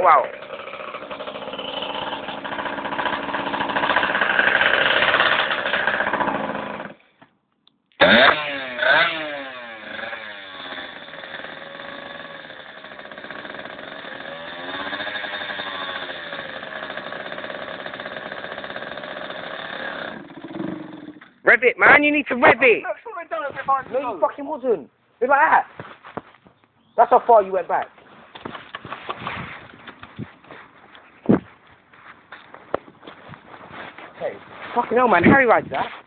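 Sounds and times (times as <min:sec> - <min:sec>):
two-stroke dirt bike engine revving: 0:00.0 - 0:07.0, 0:08.0 - 0:21.3.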